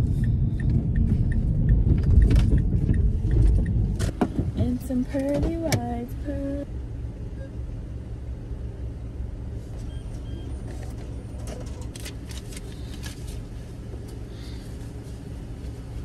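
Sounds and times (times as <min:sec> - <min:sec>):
car engine idling: 0:00.0 - 0:16.0
card and wallet rustling: 0:10.8 - 0:13.5.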